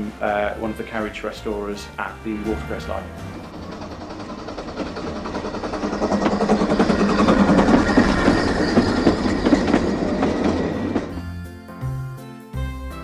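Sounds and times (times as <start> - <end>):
train wheels clattering on rails: 2.1 - 11.4.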